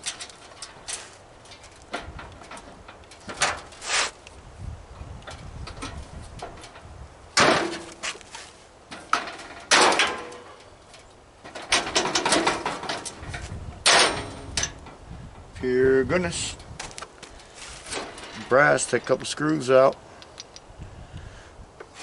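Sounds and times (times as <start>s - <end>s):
metal grill parts banging: 0.0s - 3.8s, 5.3s - 8.2s, 8.9s - 15.6s, 17.6s - 20.6s
rattling metal clanks: 0.0s - 3.8s, 5.2s - 8.1s, 8.9s - 15.6s, 17.8s - 20.7s.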